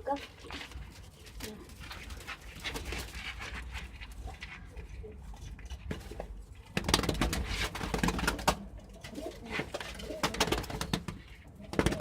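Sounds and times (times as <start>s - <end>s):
rustling and clattering: 0.0s - 12.0s
pigeons cooing: 8.3s - 12.0s.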